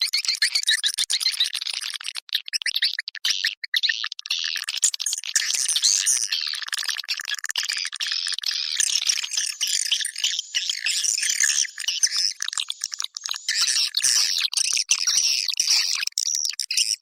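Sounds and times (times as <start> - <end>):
swiftlets chirping and twittering: 0.0 - 17.0.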